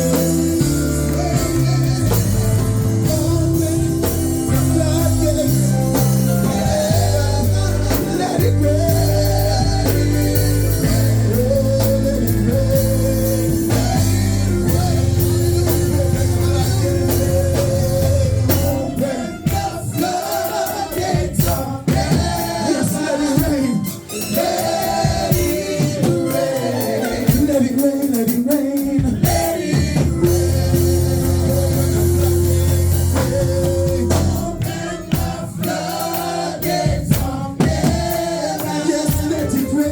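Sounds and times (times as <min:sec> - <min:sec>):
low bass notes: 0:00.0 - 0:19.1, 0:30.0 - 0:35.2
drums: 0:00.0 - 0:39.9
gospel singing over band: 0:00.0 - 0:39.9.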